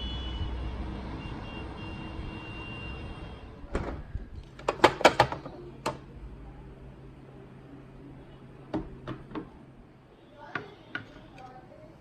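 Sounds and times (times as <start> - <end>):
sharp clicks and knocks: 3.7 - 6.1, 8.7 - 9.6.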